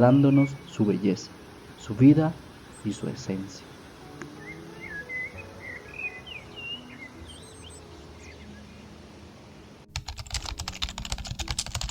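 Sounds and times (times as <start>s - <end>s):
birds chirping: 0.0s - 9.8s
faint background music: 0.0s - 11.9s
rapid keyboard clicking: 9.9s - 11.9s.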